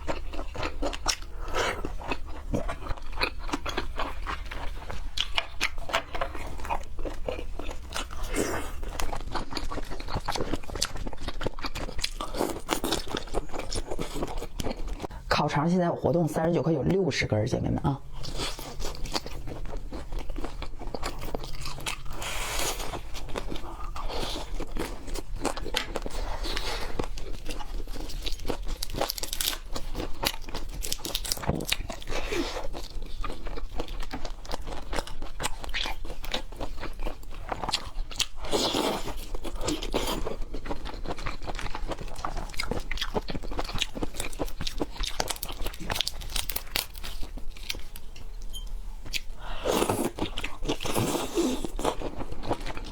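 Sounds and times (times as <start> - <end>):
person chewing crunchy food: 0.0 - 15.3, 18.0 - 52.9.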